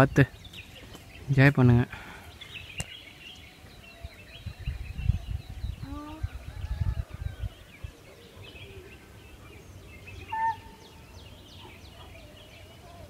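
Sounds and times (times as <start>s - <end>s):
birds chirping: 0.0s - 13.0s
wind rumble on microphone: 3.8s - 8.1s
bird whistled note: 10.3s - 10.8s.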